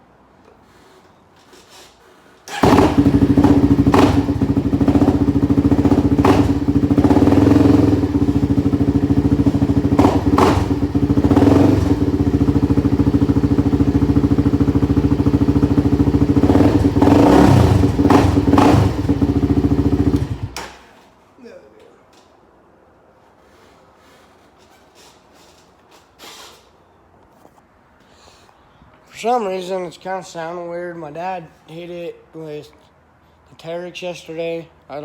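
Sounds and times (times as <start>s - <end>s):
engine throttle blips: 2.5s - 20.6s
atv engine running loudly: 2.6s - 20.5s
person talking: 29.1s - 32.8s.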